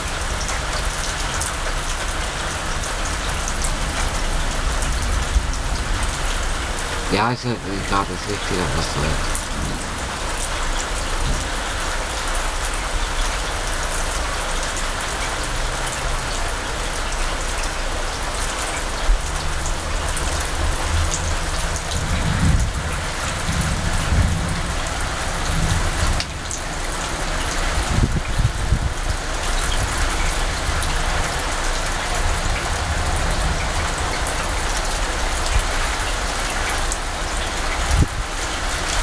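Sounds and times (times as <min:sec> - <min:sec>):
heavy rain: 0:00.0 - 0:39.0
thunder rumbling: 0:08.1 - 0:12.1, 0:21.9 - 0:29.1.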